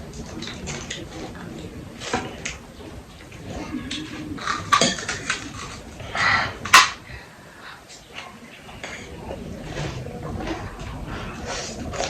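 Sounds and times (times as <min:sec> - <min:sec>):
low murmur: 0:00.0 - 0:12.0
bowls and spoons clicking: 0:04.4 - 0:05.4, 0:06.7 - 0:07.0.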